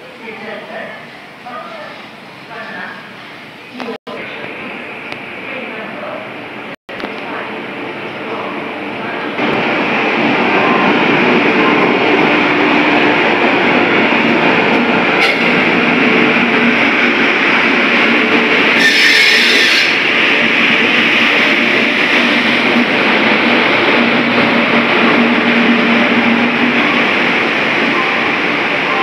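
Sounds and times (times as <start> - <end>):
train wheels on rail: 9.2 - 29.0.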